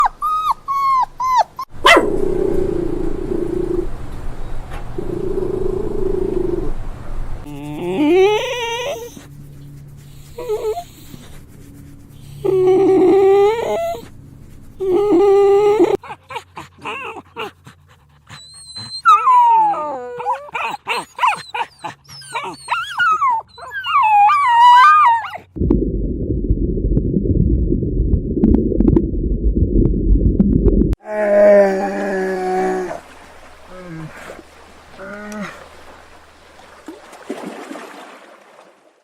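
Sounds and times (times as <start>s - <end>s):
dog whining: 0.0s - 3.9s, 7.4s - 9.4s, 10.3s - 11.4s, 12.1s - 14.1s, 14.8s - 17.6s, 18.3s - 25.5s
loud low rumbling noise: 1.8s - 7.6s, 25.6s - 31.0s.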